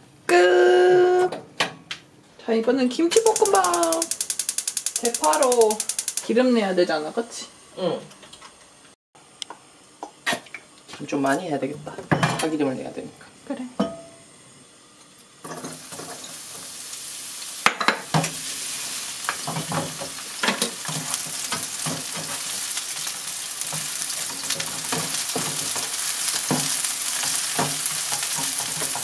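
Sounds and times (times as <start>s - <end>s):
green onions sizzling in oil: 3.2s - 8.0s, 12.6s - 29.0s
spatula scraping and tapping pan: 19.3s - 29.0s.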